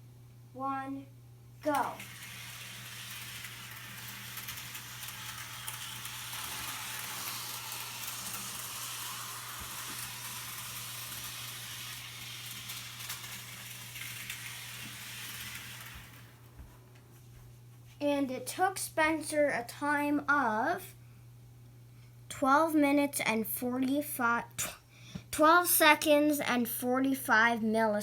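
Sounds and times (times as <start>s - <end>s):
model train motor and wheels hissing: 1.6s - 16.7s.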